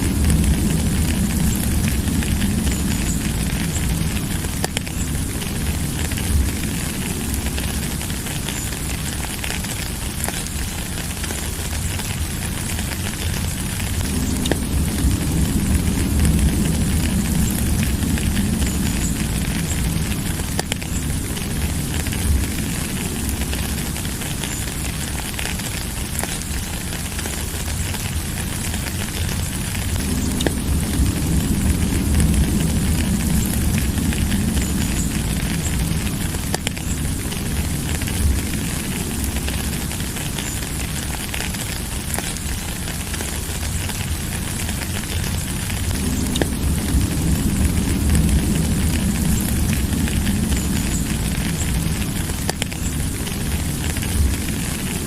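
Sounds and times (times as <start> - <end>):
deep low rumble: 0.0 - 55.0
sharp ticks of raindrops: 0.0 - 55.0
steady rain hiss: 0.0 - 55.0.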